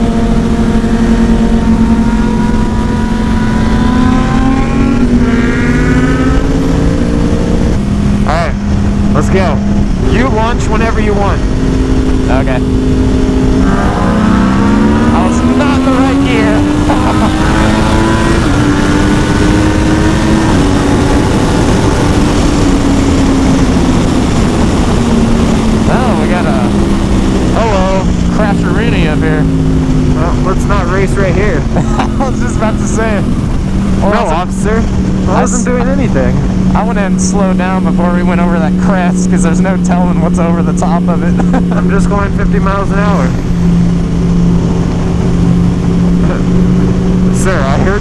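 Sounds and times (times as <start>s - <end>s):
wind noise on microphone: 0.0s - 30.3s, 31.2s - 37.1s
sport bike engine accelerating: 0.0s - 48.0s.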